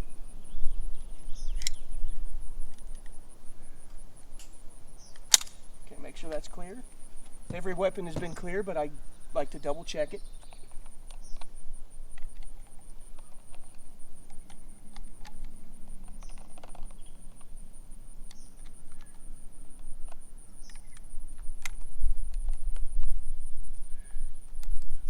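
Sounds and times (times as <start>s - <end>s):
insects chirping trill: 0.0s - 25.0s
light clicks: 1.5s - 1.9s.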